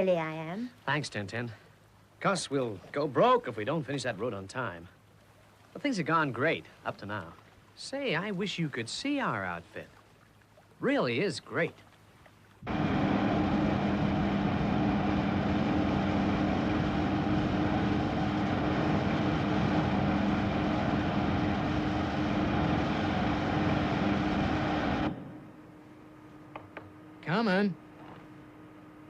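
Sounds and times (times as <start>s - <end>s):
heavy engine droning: 12.6s - 29.0s.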